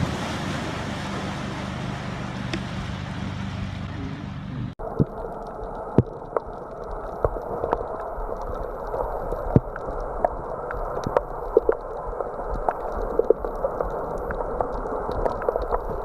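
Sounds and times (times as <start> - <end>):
muffled water gurgling: 0.0 - 16.0
sharp clicks and ticks: 4.8 - 16.0.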